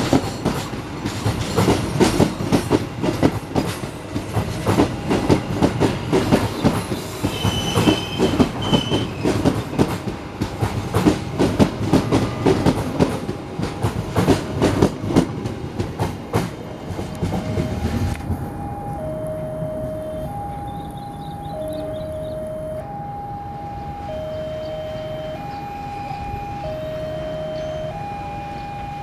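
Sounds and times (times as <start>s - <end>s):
train wheels clacking on rails: 0.0s - 19.0s
high wheel squeal: 6.9s - 9.7s.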